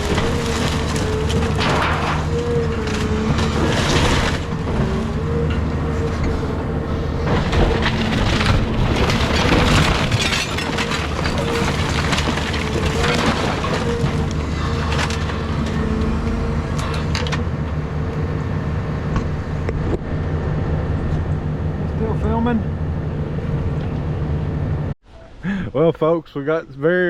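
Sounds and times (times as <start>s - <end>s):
wood framing cracking and crashing: 0.0s - 17.8s
excavator hydraulic whine: 4.5s - 8.5s.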